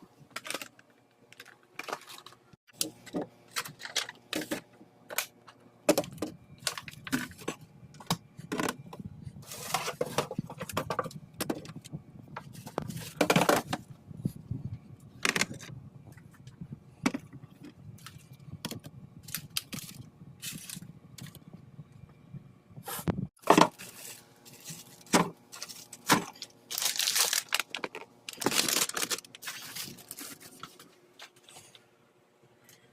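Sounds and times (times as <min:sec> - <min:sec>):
packaging being handled: 0:23.6 - 0:31.4.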